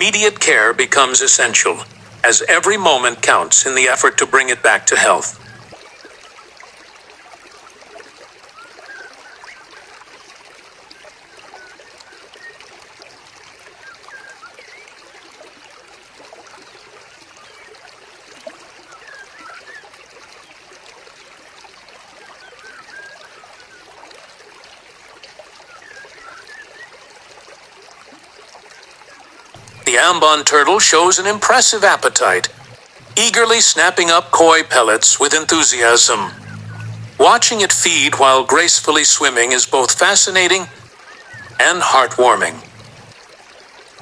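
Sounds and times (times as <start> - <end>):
small waterfall trickling: 0.0 - 44.0
plinking drips: 29.6 - 43.2.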